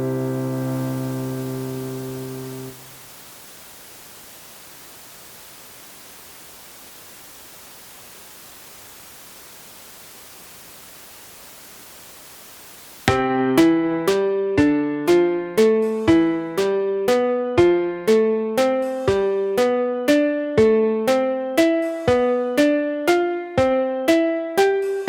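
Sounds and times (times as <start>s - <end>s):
piano chords: 0.0s - 2.8s, 13.1s - 24.8s
steady line hiss: 0.0s - 13.1s, 15.1s - 17.4s, 18.1s - 20.5s, 21.1s - 25.0s.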